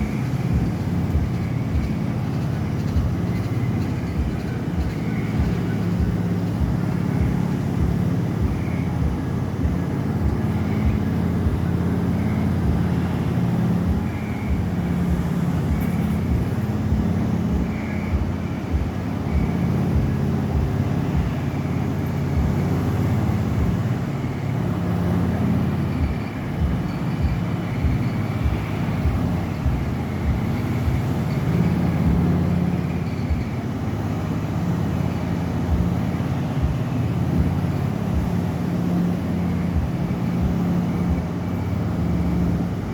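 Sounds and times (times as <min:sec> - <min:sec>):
machine hum: 0:00.0 - 0:42.9
irregular low thumps: 0:04.2 - 0:11.6, 0:22.4 - 0:22.6, 0:26.0 - 0:31.1.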